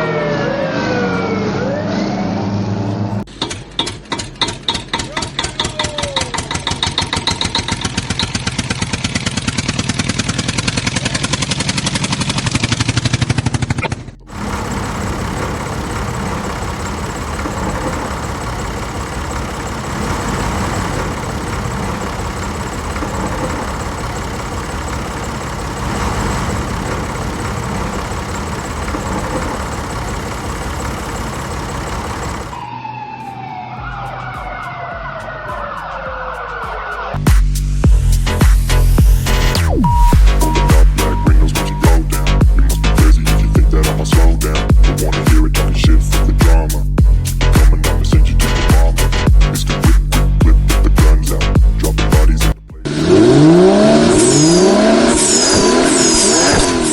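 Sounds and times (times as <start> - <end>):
siren falling tone: 0.0 - 3.2, 14.3 - 35.0, 52.9 - 56.9
engine pulsing: 0.0 - 33.6, 37.6 - 56.9.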